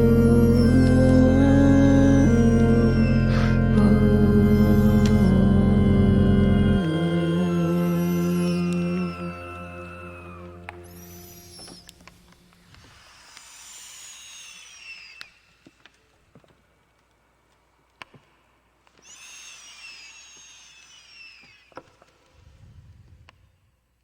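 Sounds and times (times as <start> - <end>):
high falling whistles: 0.0 - 6.0, 6.6 - 16.1, 19.0 - 23.0
low rumble: 0.0 - 11.0
sharp cracks and pops: 14.6 - 22.4.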